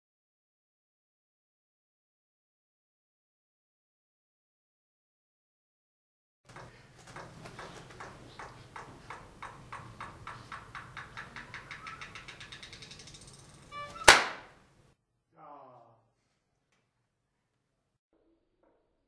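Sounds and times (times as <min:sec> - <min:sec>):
clap sounds speeding up: 0:14.0 - 0:14.5
loud sharp crash: 0:14.0 - 0:14.5.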